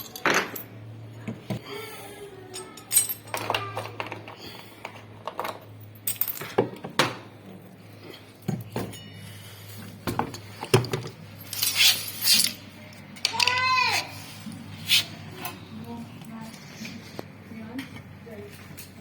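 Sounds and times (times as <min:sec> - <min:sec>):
hand tools and metal parts clinking: 0:00.0 - 0:01.6, 0:02.4 - 0:15.6.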